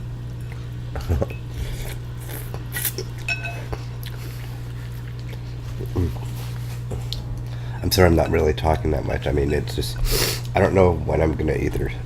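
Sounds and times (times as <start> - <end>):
steady low hum: 0.0 - 12.0
utensil clinking against bowl: 3.3 - 3.7.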